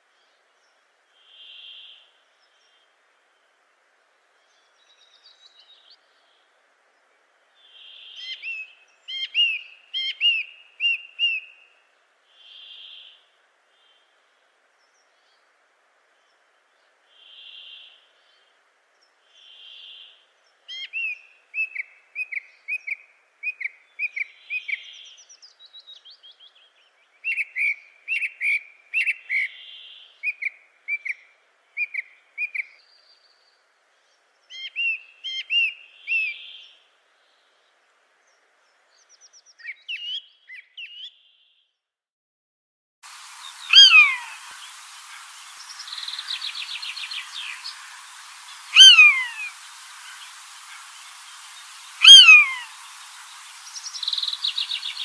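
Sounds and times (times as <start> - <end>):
hiss: 43.0 - 55.0
bird chirping: 43.2 - 55.0
soft whistled bird note: 45.5 - 55.0.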